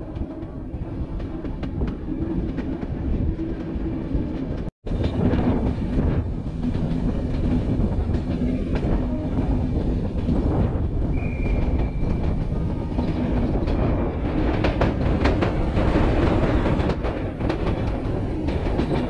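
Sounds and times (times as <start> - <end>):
train rumbling on track: 0.0 - 19.0.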